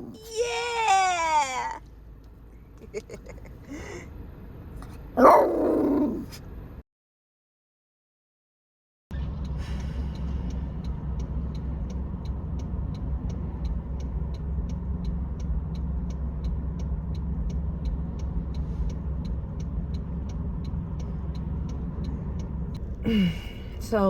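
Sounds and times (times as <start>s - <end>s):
car engine and road noise: 0.0s - 6.8s, 9.1s - 24.0s
quiet even ticking: 10.2s - 23.0s.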